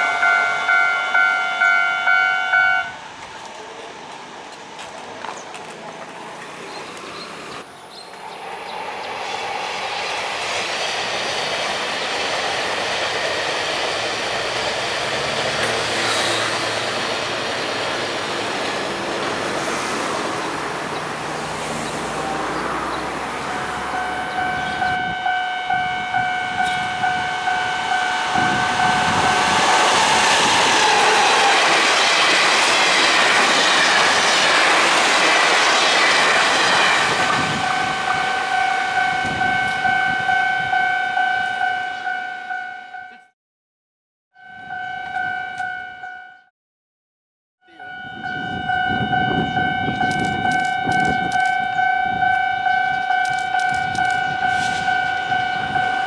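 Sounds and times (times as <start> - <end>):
train horn long note: 0.0 - 3.1, 23.5 - 31.8
train rumble: 0.0 - 42.2, 47.8 - 56.0.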